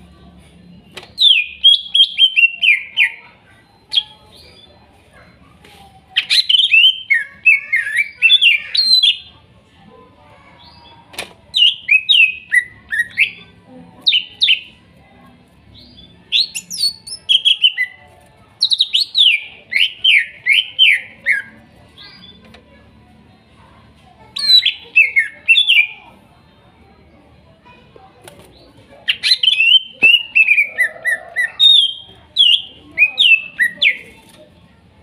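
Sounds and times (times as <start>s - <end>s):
bird singing chirps and whistles: 1.2s - 3.2s, 24.4s - 25.9s, 29.1s - 30.9s, 31.5s - 34.1s.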